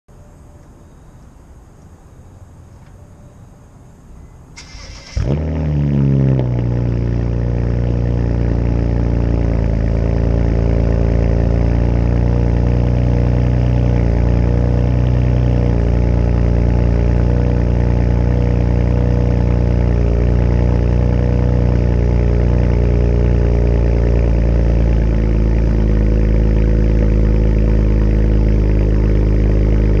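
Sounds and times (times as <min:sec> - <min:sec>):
car engine idling loudly: 0:06.6 - 0:30.0.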